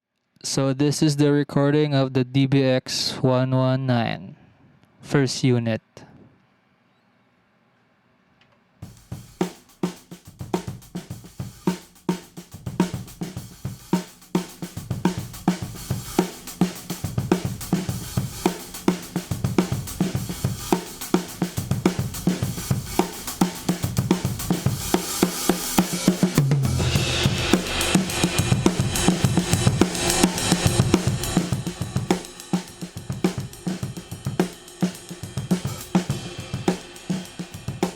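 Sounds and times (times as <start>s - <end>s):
drum kit playing a beat: 8.8s - 37.9s.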